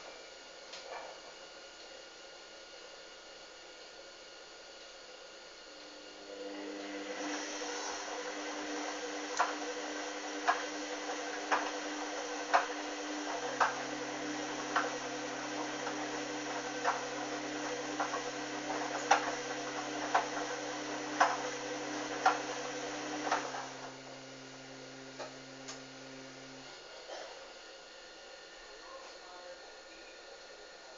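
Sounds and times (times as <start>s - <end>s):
washing machine drum motor: 6.3s - 26.7s.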